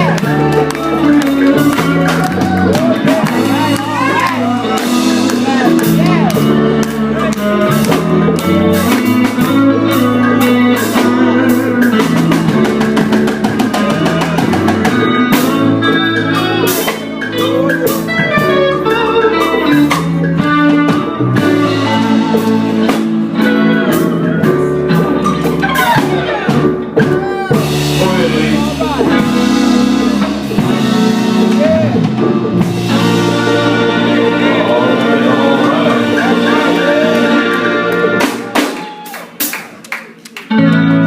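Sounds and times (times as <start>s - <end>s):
live gospel band playing: 0.0s - 41.0s.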